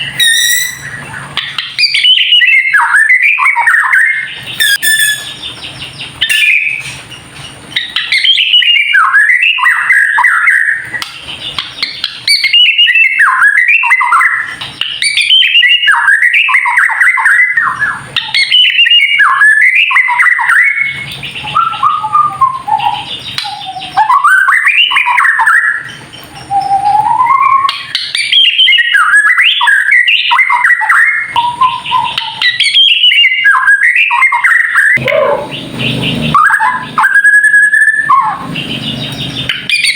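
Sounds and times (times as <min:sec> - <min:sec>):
bird whistled glides: 0:00.0 - 0:01.2, 0:04.6 - 0:05.5, 0:31.4 - 0:39.9
bird warbling song: 0:00.0 - 0:39.9.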